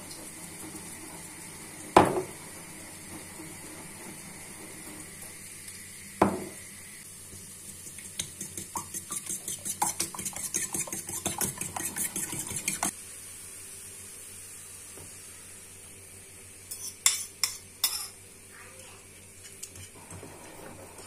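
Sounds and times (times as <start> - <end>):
utensil stirring and clinking in dish: 7.6 - 13.0, 16.7 - 18.2, 19.1 - 21.0.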